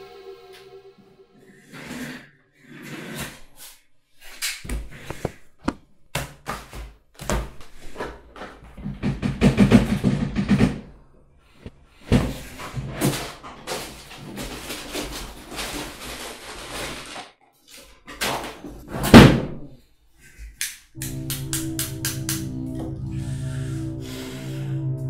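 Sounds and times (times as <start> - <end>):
papers rustling: 12.5 - 18.7.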